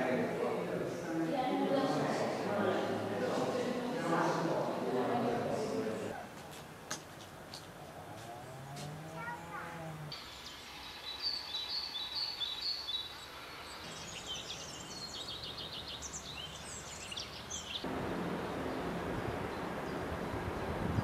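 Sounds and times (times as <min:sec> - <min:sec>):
songbirds chirping and trilling: 0:00.0 - 0:21.0
steady rushing noise: 0:17.8 - 0:21.0.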